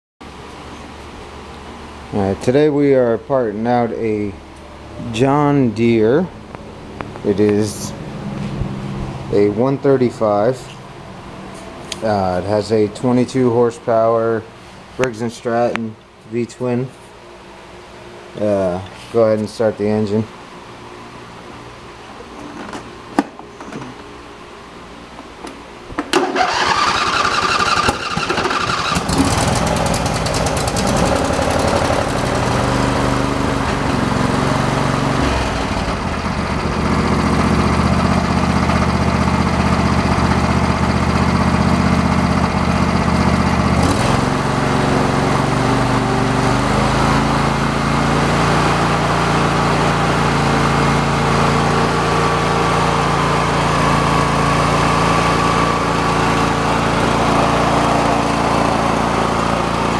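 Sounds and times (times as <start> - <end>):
lawn tractor engine starting and running: 26.1 - 59.9.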